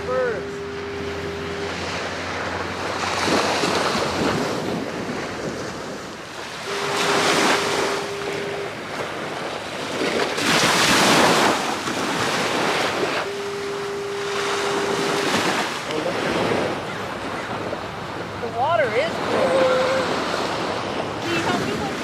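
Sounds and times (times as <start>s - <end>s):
ocean surf breaking: 0.0s - 22.0s
wind on microphone: 0.0s - 22.0s.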